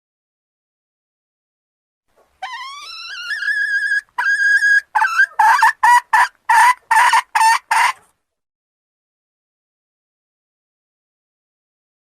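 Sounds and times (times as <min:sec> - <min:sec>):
rooster calling: 0:02.4 - 0:08.0.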